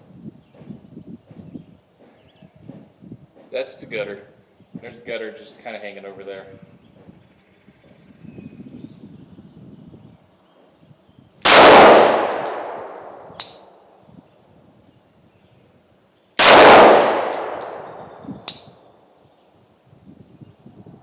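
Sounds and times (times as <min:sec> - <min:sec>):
pistol gunshots echoing: 0:11.5 - 0:13.6, 0:16.4 - 0:18.6
sharp metallic tick: 0:12.3 - 0:13.7, 0:17.3 - 0:18.7.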